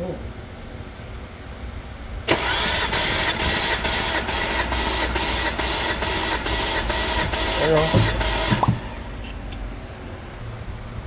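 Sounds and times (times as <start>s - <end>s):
starter motor cranking engine: 2.3s - 9.3s.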